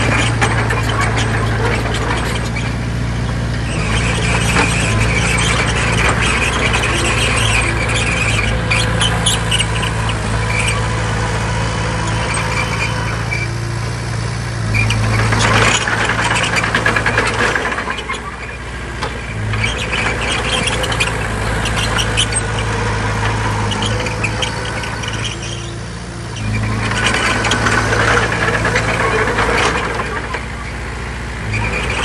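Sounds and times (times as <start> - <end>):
bulldozer diesel engine drone: 0.0 - 32.0
crawler tracks squeaking: 0.0 - 32.0.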